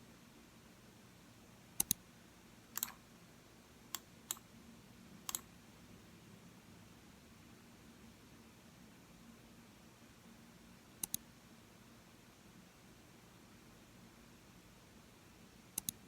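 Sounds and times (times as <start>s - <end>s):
faint room hum: 0.0s - 16.0s
computer mouse clicking: 1.8s - 2.0s, 2.8s - 3.0s, 3.9s - 4.5s, 5.3s - 5.5s, 11.0s - 11.2s, 15.8s - 16.0s.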